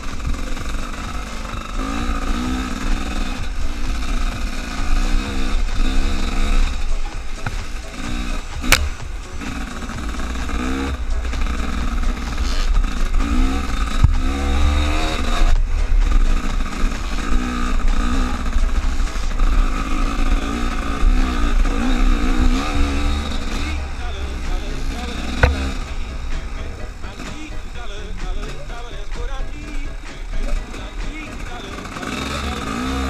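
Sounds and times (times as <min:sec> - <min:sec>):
engine revving: 0:00.0 - 0:33.0.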